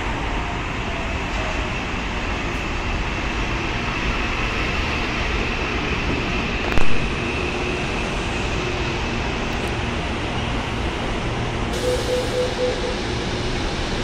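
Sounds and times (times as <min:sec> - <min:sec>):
electric train running with whine: 0:00.0 - 0:14.0
short beeps: 0:11.8 - 0:13.0.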